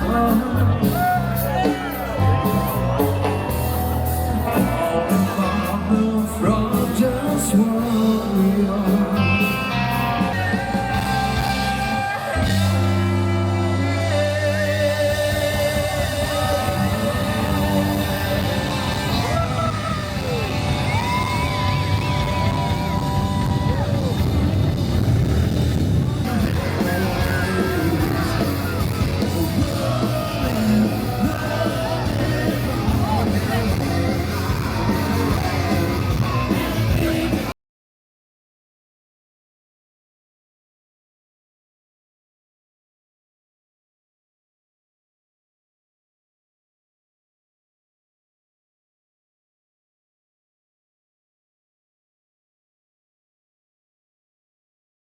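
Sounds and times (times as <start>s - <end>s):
person singing: 0.0s - 22.8s, 26.2s - 37.6s
electric guitar: 0.0s - 37.5s
heavy bass line: 0.0s - 37.5s
live rock band playing: 0.0s - 37.5s.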